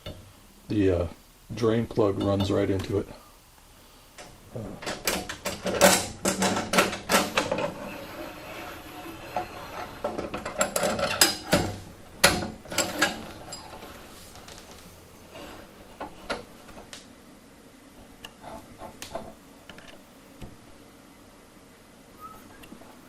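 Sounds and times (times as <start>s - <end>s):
metal parts and tools clanking: 4.8s - 14.6s.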